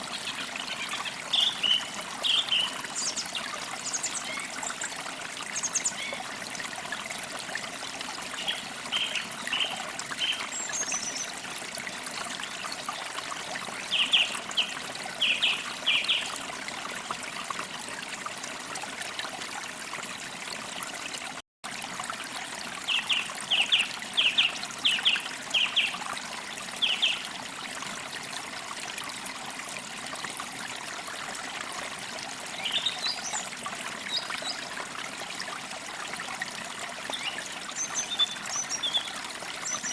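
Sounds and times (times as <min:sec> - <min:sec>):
stream water trickling: 0:00.0 - 0:39.9
songbirds singing: 0:00.1 - 0:04.9, 0:08.3 - 0:11.3, 0:13.8 - 0:16.4, 0:32.5 - 0:33.5, 0:37.1 - 0:39.9.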